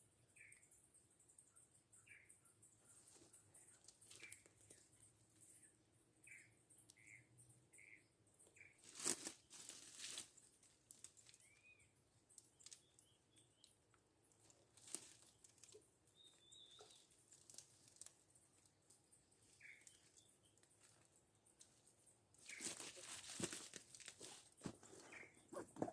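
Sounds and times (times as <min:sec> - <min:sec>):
small bird chirping: 0:00.0 - 0:25.9
sharp crackles or rustles: 0:08.8 - 0:11.4, 0:14.8 - 0:15.8, 0:22.4 - 0:25.9.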